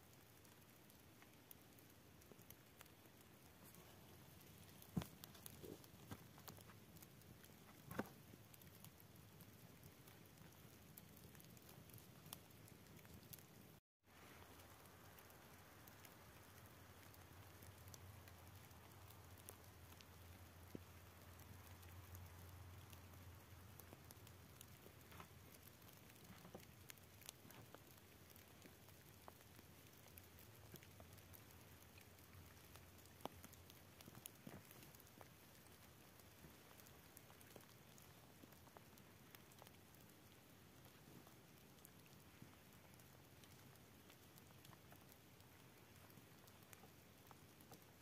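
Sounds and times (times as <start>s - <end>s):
faint steady hiss: 0.0s - 48.0s
faint ticks and patters: 0.0s - 48.0s.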